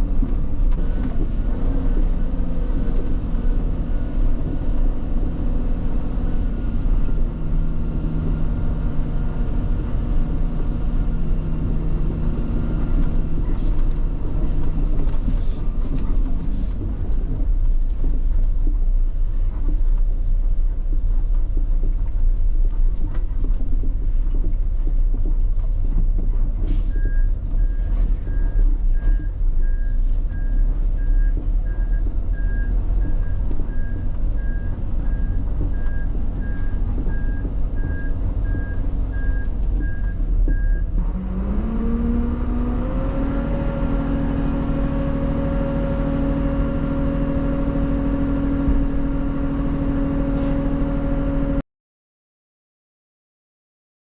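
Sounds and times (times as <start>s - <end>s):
diesel truck engine rumble: 0.0s - 51.6s.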